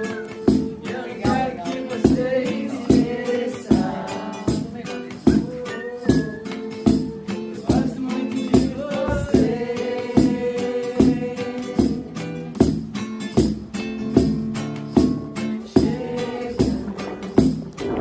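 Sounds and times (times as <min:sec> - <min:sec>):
people singing along: 0:00.0 - 0:12.3, 0:15.6 - 0:18.0
acoustic guitar strumming: 0:00.0 - 0:18.0.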